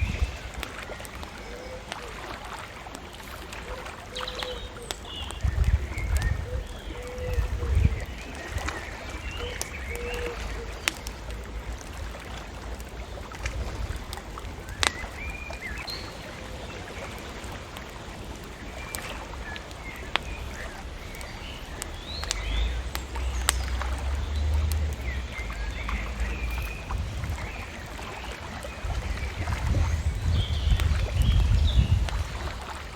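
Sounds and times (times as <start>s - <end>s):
small birds chirping: 0.0s - 32.9s
wood fire crackling and popping: 0.0s - 32.9s
steady low rumble: 20.1s - 32.6s.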